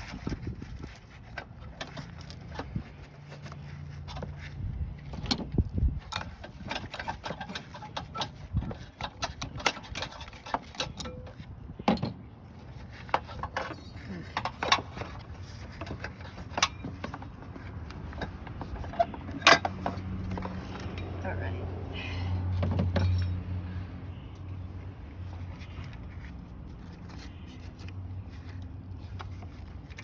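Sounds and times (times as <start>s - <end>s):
metallic clicks and knocks: 5.1s - 12.2s, 13.0s - 21.2s.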